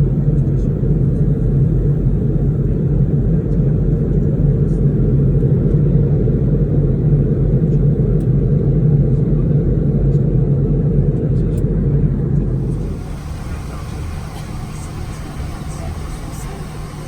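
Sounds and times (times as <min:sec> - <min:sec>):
vehicle rumbling in motion: 0:11.4 - 0:17.0.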